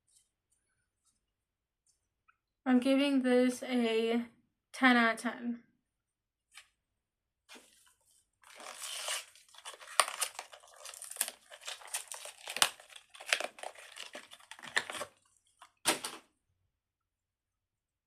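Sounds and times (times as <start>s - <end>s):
plastic crinkling and crackling: 7.5s - 16.2s.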